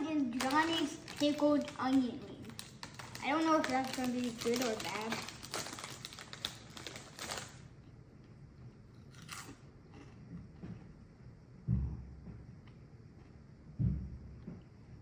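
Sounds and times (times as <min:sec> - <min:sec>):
crisp packet crinkling and tearing: 0:00.1 - 0:07.7
low thump: 0:11.6 - 0:12.5, 0:13.8 - 0:14.6.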